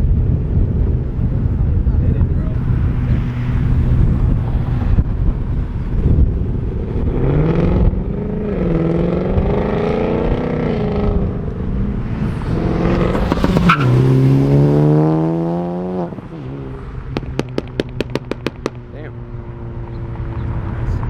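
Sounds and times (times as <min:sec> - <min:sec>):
car engine revving: 0:02.4 - 0:21.0
sharp crack: 0:17.2 - 0:18.8.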